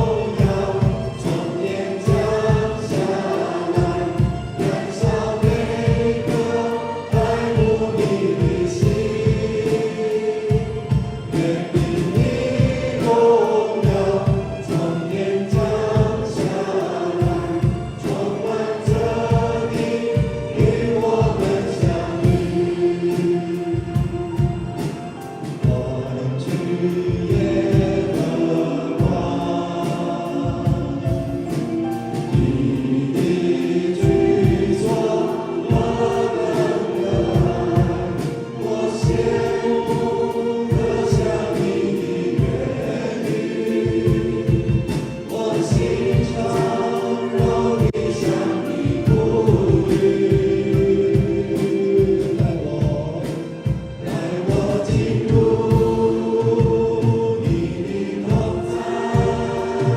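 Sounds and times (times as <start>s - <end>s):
congregation singing worship song: 0.0s - 59.9s
worship band with steady beat: 0.0s - 59.9s.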